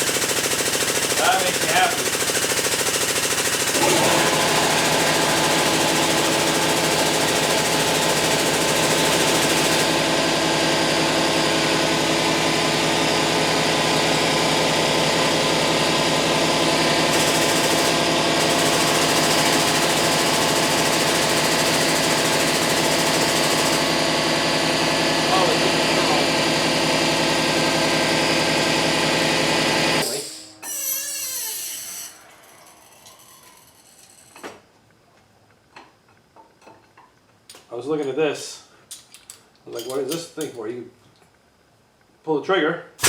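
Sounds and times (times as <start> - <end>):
hydraulic pump chattering: 3.4 - 9.8.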